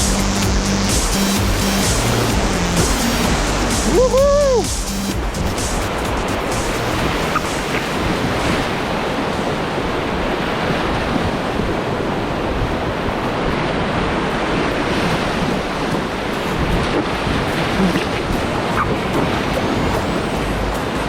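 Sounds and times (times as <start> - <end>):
river water rushing: 0.0 - 21.0
wind buffeting microphone: 5.2 - 21.0.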